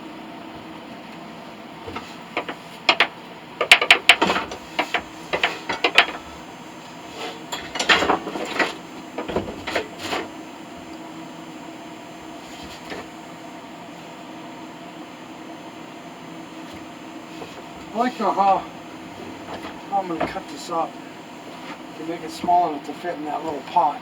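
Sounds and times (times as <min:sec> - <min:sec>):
steady background hum: 0:00.0 - 0:24.0
hard objects clinking and knocking: 0:02.4 - 0:06.4.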